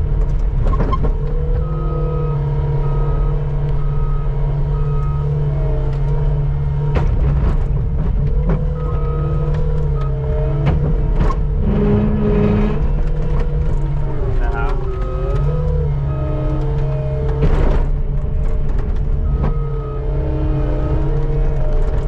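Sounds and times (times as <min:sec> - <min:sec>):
skid steer engine running: 0:00.0 - 0:22.0
reversing alarm beeping: 0:01.6 - 0:05.8, 0:08.7 - 0:10.6, 0:14.5 - 0:17.3, 0:19.2 - 0:22.0.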